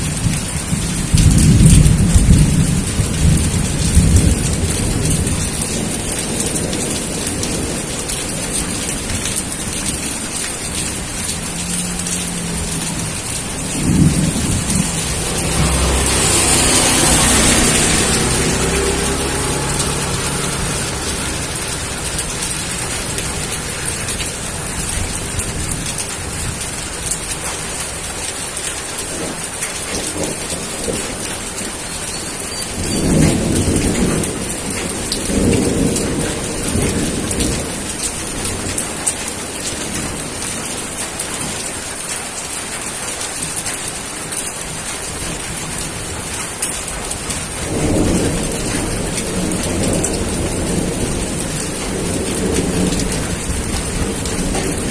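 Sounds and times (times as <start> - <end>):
thunder rolling: 0.0 - 10.1, 10.8 - 27.0
heavy rain: 0.0 - 54.9.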